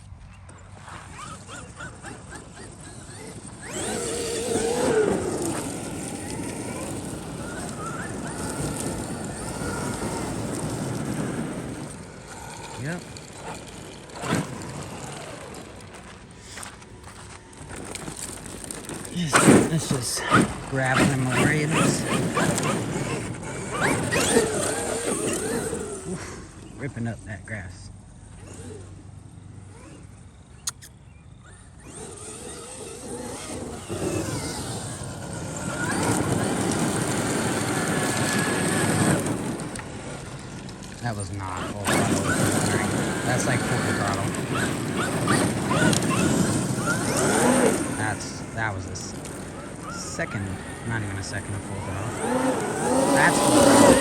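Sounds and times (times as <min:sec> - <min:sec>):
electric motor whining: 0:00.0 - 0:54.0
tyres tearing through grass: 0:00.1 - 0:54.0
sharp click: 0:30.6 - 0:30.9.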